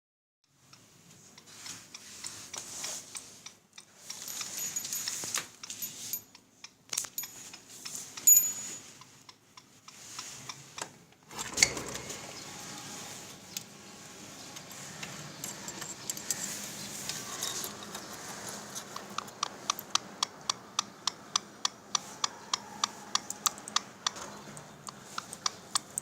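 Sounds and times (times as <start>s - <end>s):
rustling: 1.0s - 6.4s.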